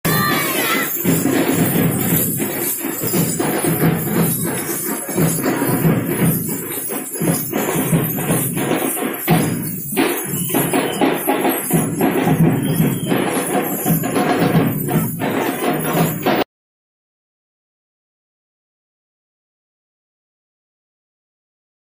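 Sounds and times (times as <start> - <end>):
barrel drums and snare drums beating: 0.0 - 16.4.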